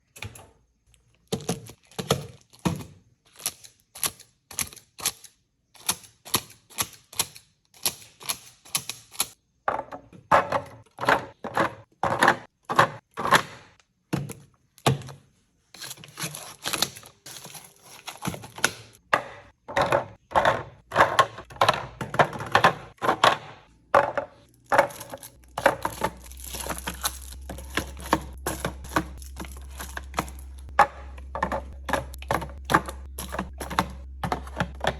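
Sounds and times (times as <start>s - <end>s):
groceries being set down: 1.1s - 3.6s, 9.7s - 34.9s
steady low hum: 23.7s - 34.9s.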